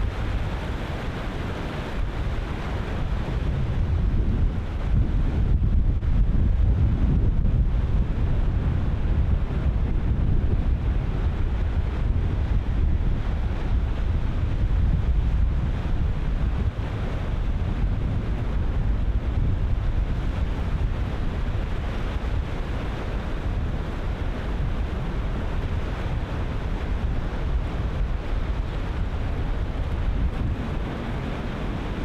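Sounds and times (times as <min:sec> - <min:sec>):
wind buffeting microphone: 0:00.0 - 0:32.0
ocean surf breaking: 0:23.6 - 0:32.0.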